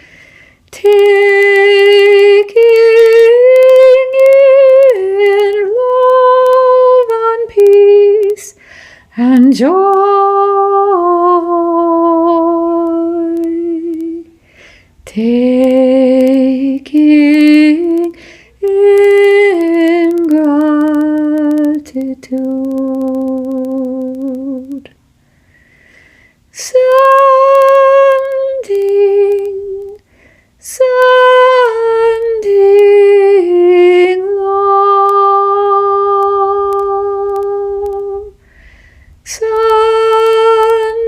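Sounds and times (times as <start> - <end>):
woman breathing in: 0.0 - 0.7, 8.6 - 9.1, 14.4 - 15.0, 18.2 - 18.6, 25.2 - 26.4, 30.1 - 30.6, 38.4 - 39.2.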